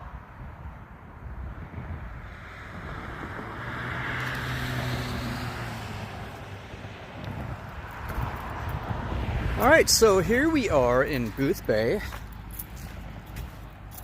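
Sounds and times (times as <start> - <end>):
wind rumbling on microphone: 0.0 - 11.4
vehicle passing by: 1.6 - 14.0.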